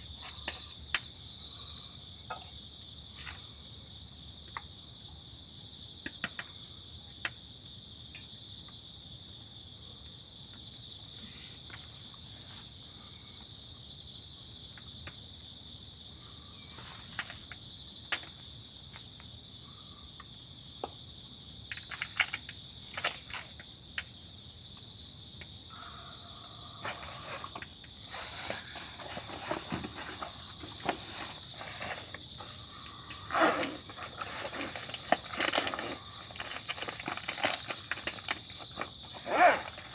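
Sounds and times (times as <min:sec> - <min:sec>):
crickets chirping in trills: 0:00.0 - 0:39.9
high insect drone: 0:06.5 - 0:39.9.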